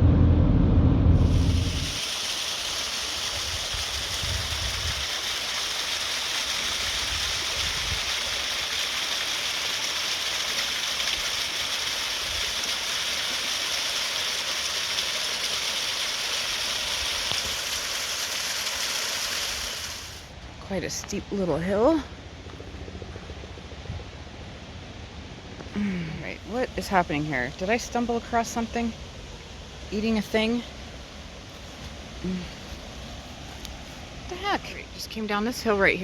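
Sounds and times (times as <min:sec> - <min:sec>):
small waterfall rushing: 0:01.3 - 0:20.4, 0:24.6 - 0:36.0.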